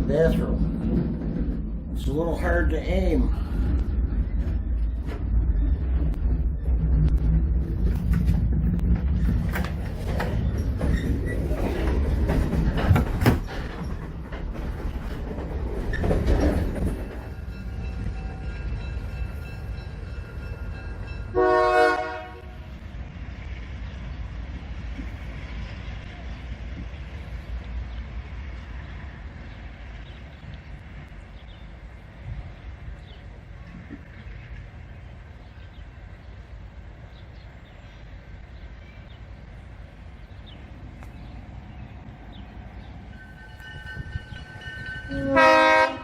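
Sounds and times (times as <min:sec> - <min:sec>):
train rumbling and clattering: 0:00.0 - 0:46.0
locomotive horn blast: 0:21.3 - 0:22.8, 0:45.0 - 0:46.0.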